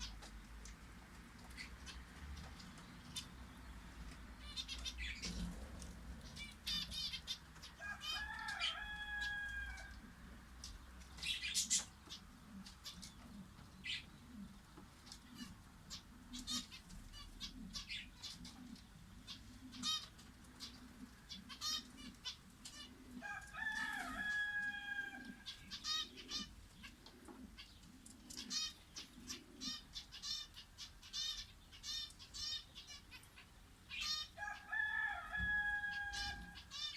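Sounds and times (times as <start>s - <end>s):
low repeated bird calls: 0.0s - 0.7s
small birds chirping: 0.0s - 36.9s
rooster crowing: 7.8s - 10.0s, 23.2s - 25.5s, 34.4s - 36.8s.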